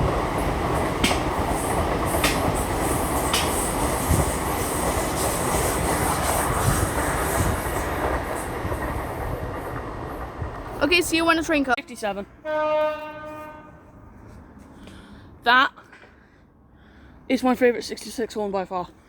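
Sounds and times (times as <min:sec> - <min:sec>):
train wheels rushing on rail: 0:00.0 - 0:11.8.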